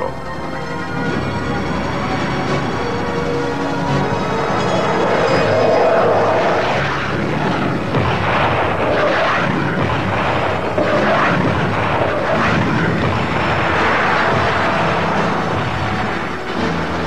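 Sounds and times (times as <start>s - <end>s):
military jet flying over: 0.0s - 17.0s
blasts: 3.9s - 17.0s.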